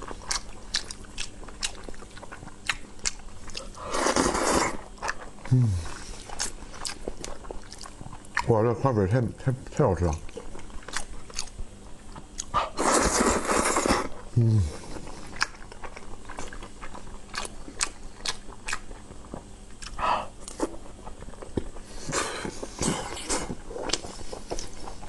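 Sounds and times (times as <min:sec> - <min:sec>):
wet chewing and mouth clicks: 0:00.0 - 0:08.5, 0:10.0 - 0:14.3, 0:14.9 - 0:25.0
person humming: 0:05.5 - 0:06.0, 0:14.4 - 0:14.9.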